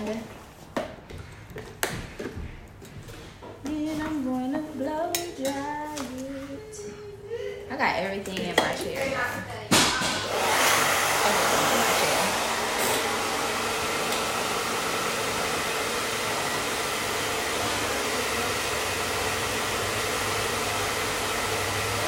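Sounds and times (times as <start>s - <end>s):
hair dryer blowing air: 9.8s - 22.0s.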